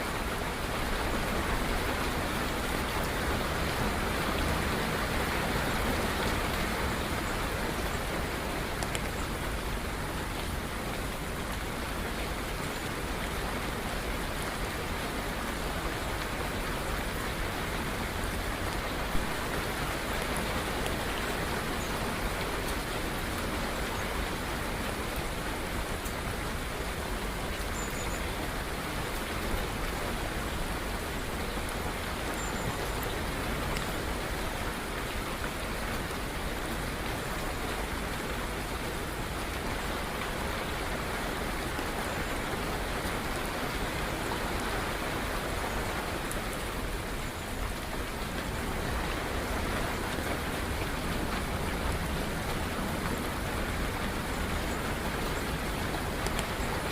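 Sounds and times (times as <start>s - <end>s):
steady rain falling: 0.0s - 56.9s.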